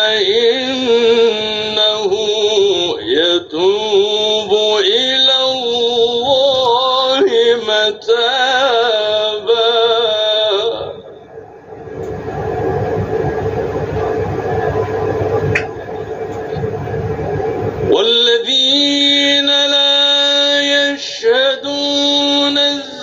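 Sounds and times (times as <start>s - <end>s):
man chanting: 0.0s - 11.2s, 17.9s - 23.0s
steady rumbling noise: 0.0s - 23.0s
click: 12.0s - 12.2s.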